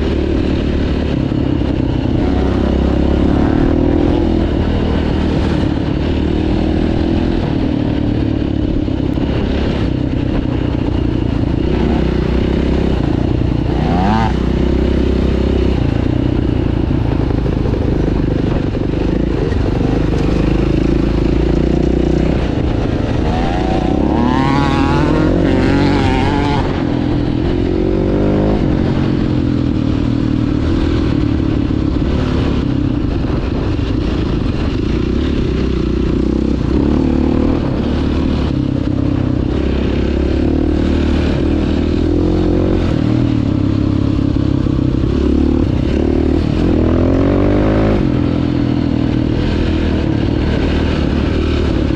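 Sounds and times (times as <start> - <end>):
dirt bike engine revving: 0.0 - 8.4, 11.5 - 18.0, 19.0 - 29.3, 44.4 - 48.6.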